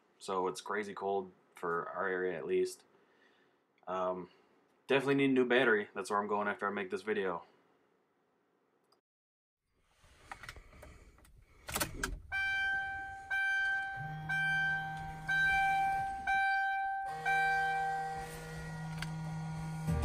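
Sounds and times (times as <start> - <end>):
car warning chime dinging: 12.2 - 19.5.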